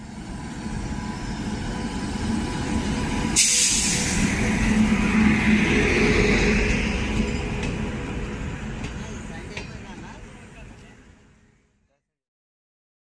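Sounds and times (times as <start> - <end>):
wheels rumbling on rail: 0.0 - 11.6
rush of hiss: 3.3 - 4.4.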